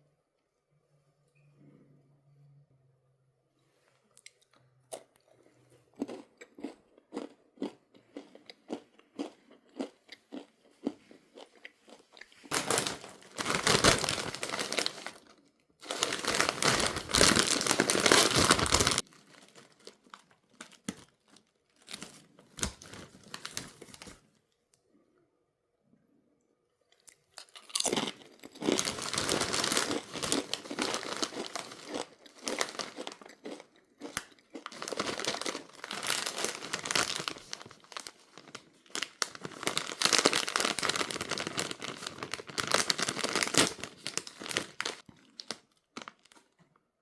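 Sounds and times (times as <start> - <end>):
person chewing crunchy snack: 4.2 - 23.6, 27.0 - 45.7
plastic bag crinkling: 12.4 - 24.2, 27.7 - 46.6.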